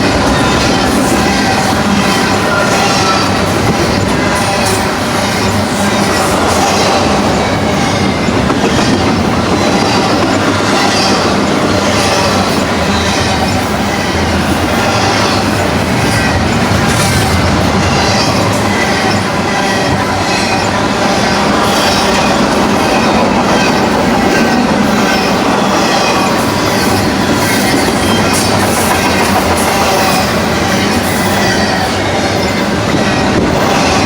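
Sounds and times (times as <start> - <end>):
rhythmic train clatter: 0.0 - 34.0
train wheels rumbling on rail: 0.0 - 34.0.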